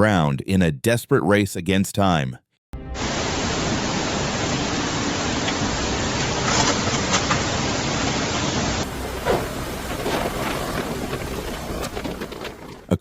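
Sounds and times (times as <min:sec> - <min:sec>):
heavy rain: 0:02.8 - 0:13.0
storm wind roaring: 0:03.0 - 0:13.0.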